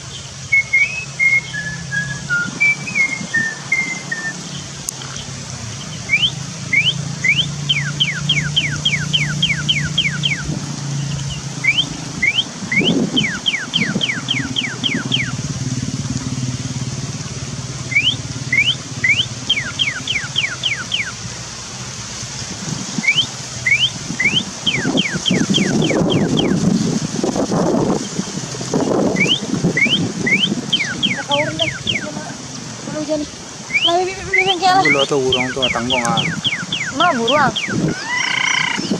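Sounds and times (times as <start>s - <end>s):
bird whistling calls: 0.4s - 4.6s, 5.9s - 15.4s, 17.9s - 21.2s, 23.0s - 26.6s, 29.1s - 32.2s, 33.7s - 38.9s.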